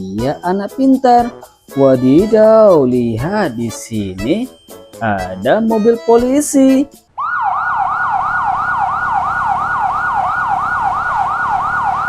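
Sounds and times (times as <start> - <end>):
toy police car siren wailing: 7.2 - 12.0.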